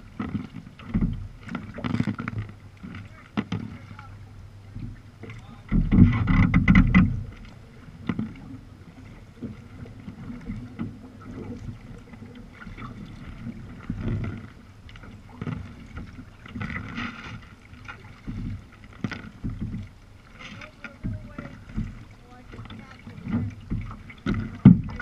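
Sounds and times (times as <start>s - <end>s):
paddle blades dipping: 0.0s - 25.0s
water splashing against hull: 0.0s - 25.0s.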